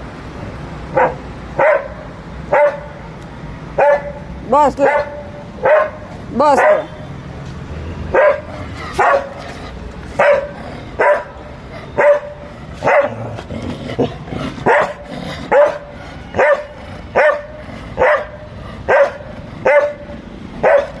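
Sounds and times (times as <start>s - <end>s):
dog barking: 0.9s - 3.0s, 3.8s - 7.0s, 8.1s - 9.4s, 10.1s - 13.2s, 14.6s - 21.0s.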